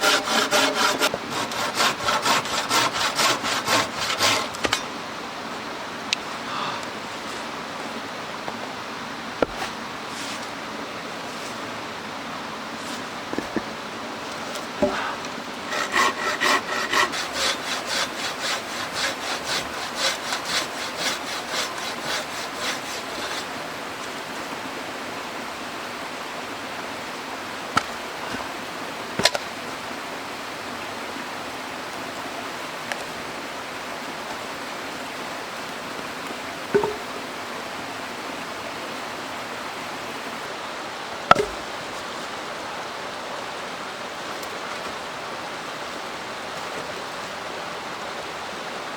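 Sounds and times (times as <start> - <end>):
hand saw cutting wood: 0.0 - 4.9, 15.7 - 23.6, 36.8 - 37.0
stream water rushing: 0.0 - 48.9
sharp knocks: 36.7 - 37.1, 41.3 - 41.7.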